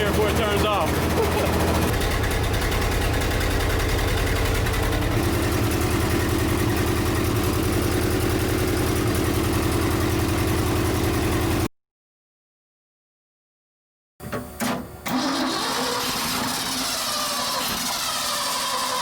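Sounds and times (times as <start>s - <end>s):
truck engine idling unevenly: 0.0s - 11.7s.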